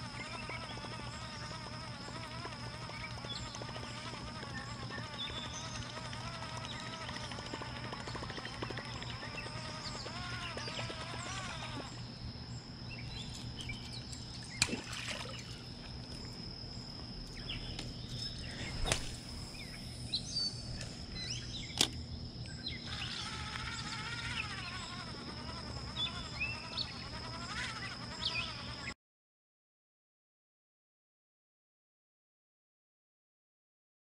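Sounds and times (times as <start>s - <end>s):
high-pitched insect drone: 0.0s - 29.0s.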